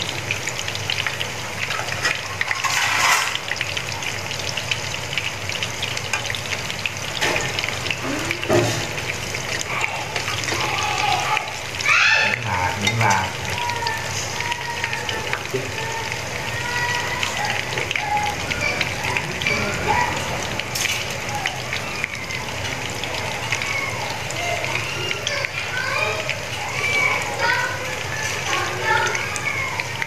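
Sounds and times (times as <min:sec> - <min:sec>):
fritters sizzling in hot oil: 0:00.0 - 0:30.0.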